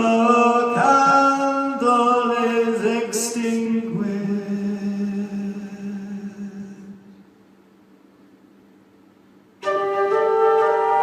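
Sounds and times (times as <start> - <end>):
live band music: 9.6 - 11.0.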